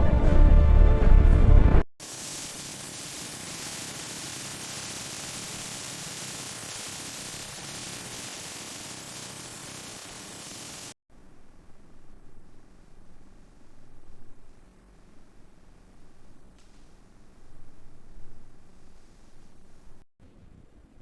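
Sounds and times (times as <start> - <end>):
static hiss: 2.0 - 20.0.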